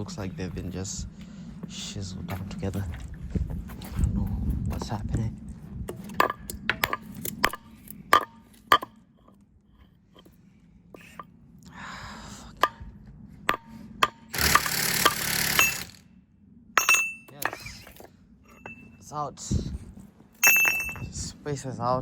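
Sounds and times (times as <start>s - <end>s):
metal-on-metal knocks: 6.1s - 9.0s, 13.5s - 15.9s, 16.8s - 17.9s, 20.4s - 21.2s.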